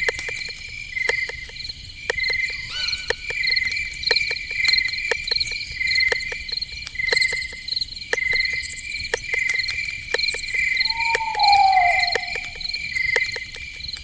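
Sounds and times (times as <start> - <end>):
crickets chirping: 9.8 - 14.0
low call sliding down: 10.9 - 12.6.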